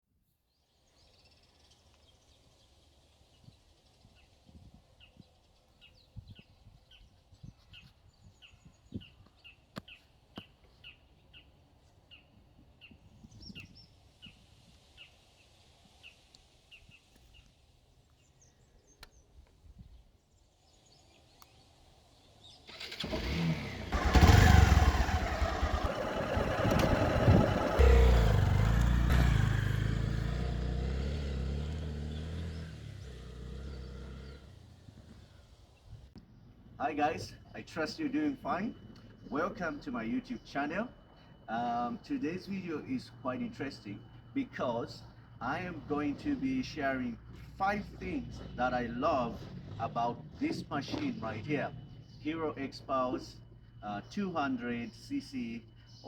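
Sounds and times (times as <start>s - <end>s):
motorcycle engine revving: 22.6s - 36.0s, 48.0s - 52.0s
bird chirping: 25.2s - 56.0s.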